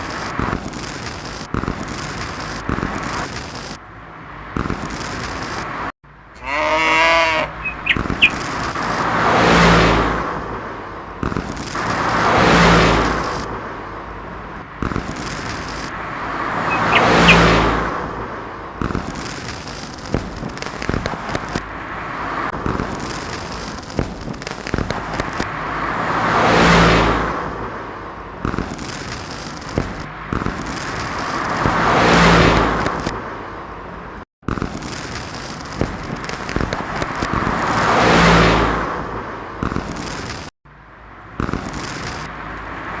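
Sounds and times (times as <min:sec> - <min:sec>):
road vehicles whooshing past: 0:00.0 - 0:43.0
wavering pitched call: 0:06.4 - 0:08.5, 0:16.7 - 0:17.5.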